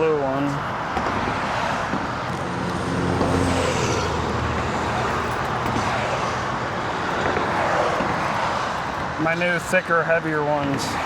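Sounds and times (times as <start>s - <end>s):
road traffic noise: 0.0s - 11.0s
passing vehicle engine hum: 0.6s - 9.2s.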